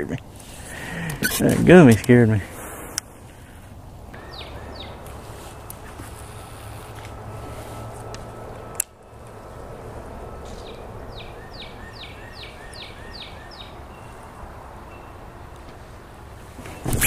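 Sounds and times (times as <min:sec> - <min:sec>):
outdoor noise bed: 0:00.0 - 0:17.0
bird calling descending notes: 0:04.1 - 0:06.4.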